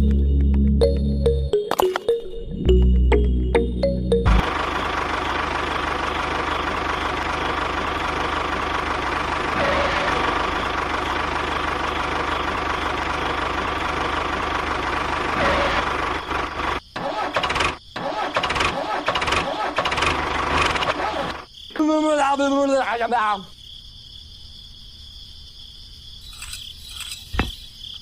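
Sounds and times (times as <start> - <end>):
engine chugging: 2.7 - 21.4.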